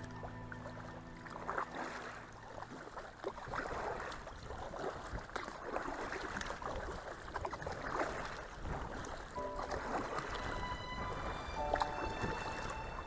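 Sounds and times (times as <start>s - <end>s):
background music: 0.0s - 2.5s, 9.4s - 13.0s
paddle strokes splashing water: 0.0s - 13.0s.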